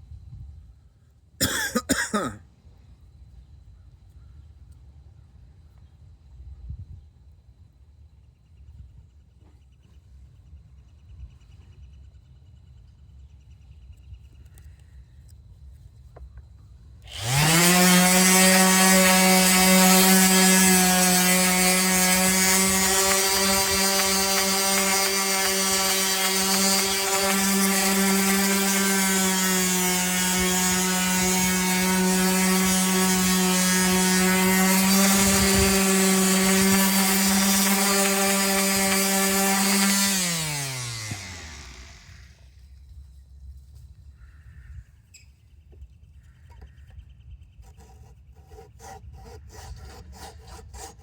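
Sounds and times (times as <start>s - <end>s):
power tool motor whine: 17.1s - 42.6s.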